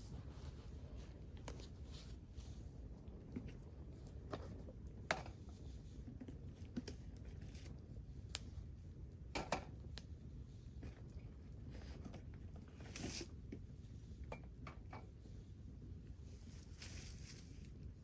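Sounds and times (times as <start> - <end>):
steady low hiss: 0.0 - 3.1.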